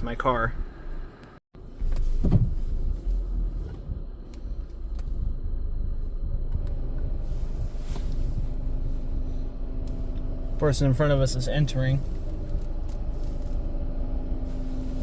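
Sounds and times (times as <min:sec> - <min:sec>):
car engine rumble inside cabin: 0:00.6 - 0:15.0
thump: 0:02.2 - 0:02.6.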